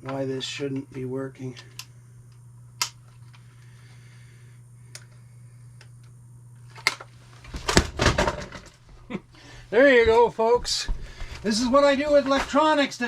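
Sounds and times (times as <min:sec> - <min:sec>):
steady low hum: 0:00.0 - 0:13.0
camera crashing onto floor: 0:06.8 - 0:08.8.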